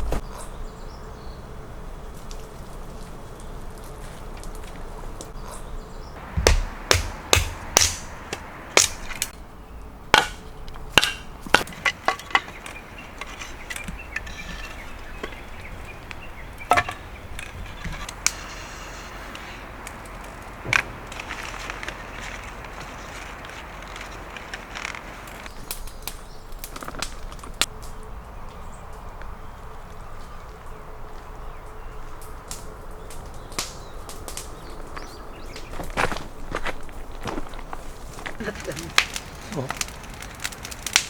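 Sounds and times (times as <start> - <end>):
wood splitting knocks: 6.2 - 9.3, 10.1 - 18.4, 20.2 - 25.5.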